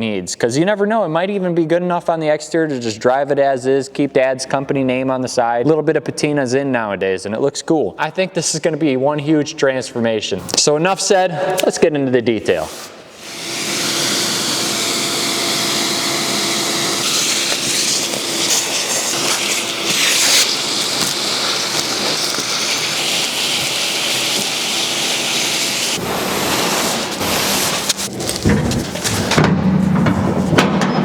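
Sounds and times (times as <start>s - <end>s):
vacuum sucking leaves and debris: 13.2s - 29.3s
vacuum motor running: 13.2s - 29.4s.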